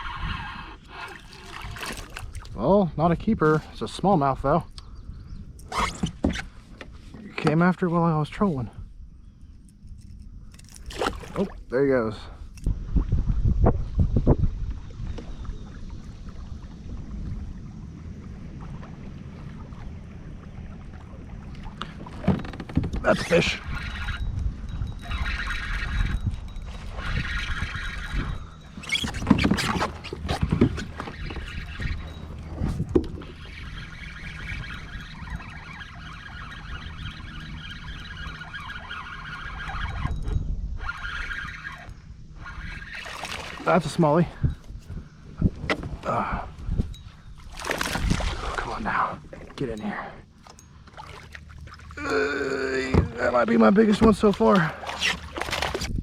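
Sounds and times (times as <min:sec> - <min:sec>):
fishing reel whirring: 0:00.0 - 0:02.0, 0:22.4 - 0:44.8
wind rumble on microphone: 0:00.0 - 0:50.9, 0:51.5 - 0:56.0
water moving along hull: 0:00.0 - 0:56.0.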